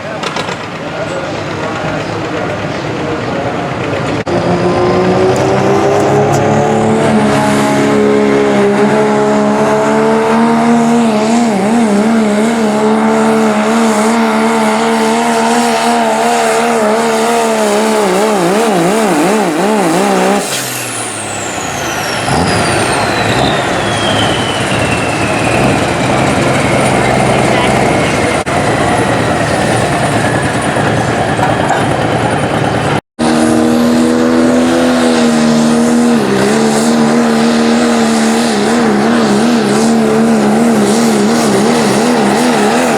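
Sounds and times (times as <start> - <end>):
diesel engine at full throttle: 0.0 - 42.9
turbocharger whistle falling: 19.9 - 28.1.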